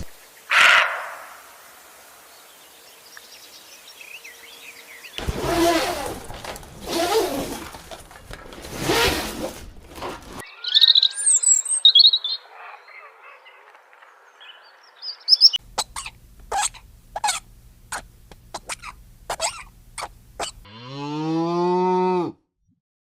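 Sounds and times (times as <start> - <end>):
short sharp animal calls: 0.5 - 1.4, 15.8 - 20.6
harsh noisy animal call: 0.5 - 1.6, 15.8 - 20.7
high bird chirps: 10.4 - 13.7, 14.4 - 18.0.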